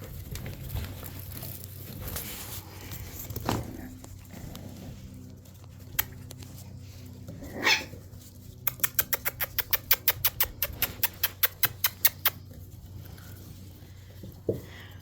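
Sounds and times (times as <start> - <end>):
puppy squeak: 8.7 - 12.4
rapid sharp clicks: 8.7 - 12.4.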